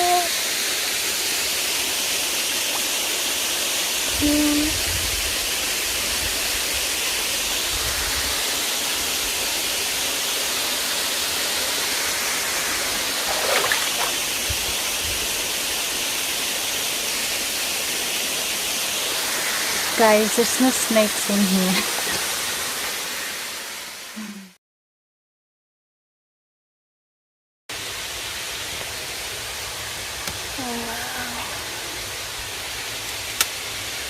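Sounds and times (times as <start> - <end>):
waterfall rushing: 5.6 - 24.0.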